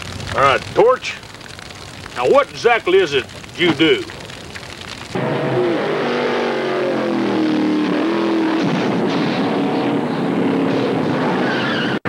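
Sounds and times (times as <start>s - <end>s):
car engine at high revs: 5.2s - 11.8s.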